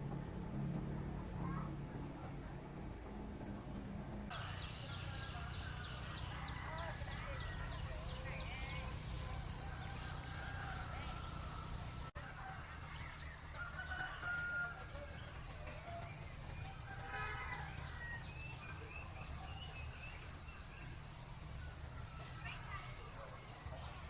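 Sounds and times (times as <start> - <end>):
steady high-pitched whine: 0.0 - 17.4
rooster crowing: 4.3 - 7.8, 9.4 - 16.0, 16.8 - 18.4.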